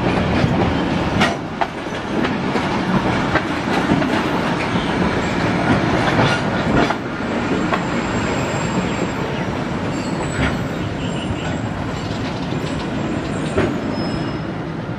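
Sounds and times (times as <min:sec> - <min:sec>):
train wheels rumbling on rail: 0:00.0 - 0:14.9
high wheel squeal: 0:07.8 - 0:14.6.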